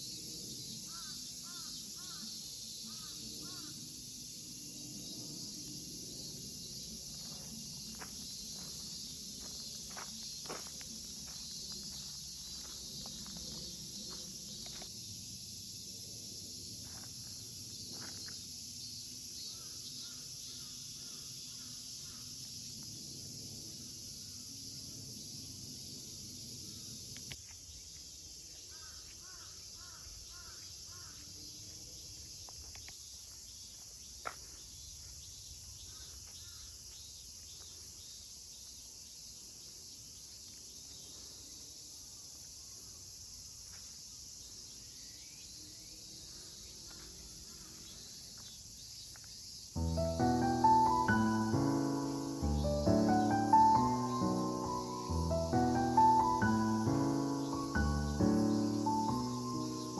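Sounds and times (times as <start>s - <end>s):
high insect drone: 0.0s - 59.9s
small bird calling: 0.9s - 3.7s.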